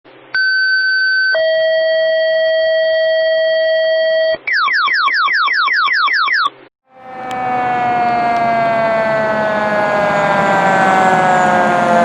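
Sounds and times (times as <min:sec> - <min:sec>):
electronic warble: 0:06.9 - 0:12.0.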